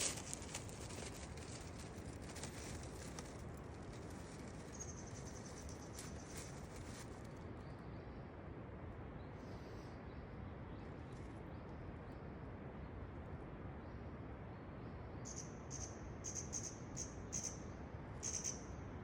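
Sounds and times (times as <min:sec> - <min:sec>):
high insect chirps: 0:04.2 - 0:07.0, 0:18.2 - 0:18.6.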